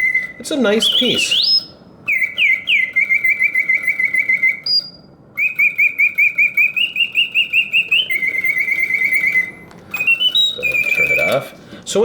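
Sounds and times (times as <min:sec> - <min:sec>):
mechanical bird whistle trills: 0:00.0 - 0:11.6.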